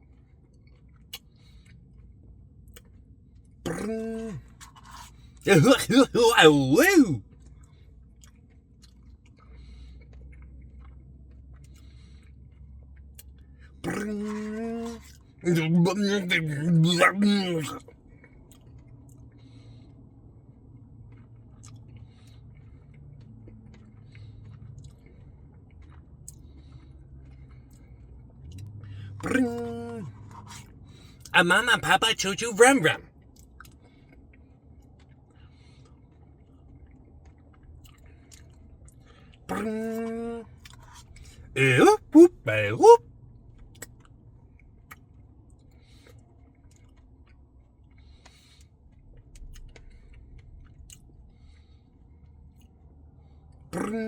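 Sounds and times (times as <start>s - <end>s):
man singing one note: 5.5s - 7.2s, 31.4s - 33.0s, 41.6s - 43.0s
person humming: 41.6s - 43.0s.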